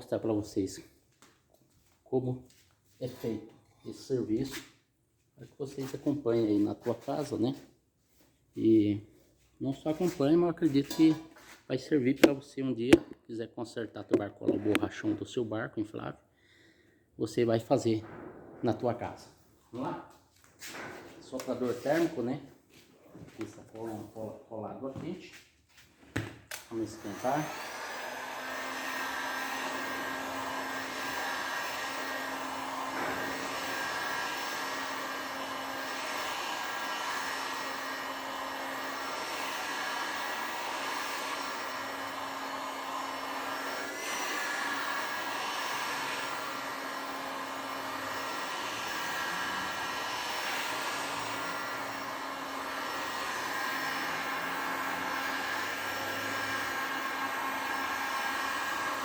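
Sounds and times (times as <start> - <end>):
heat gun blowing: 26.2 - 59.0.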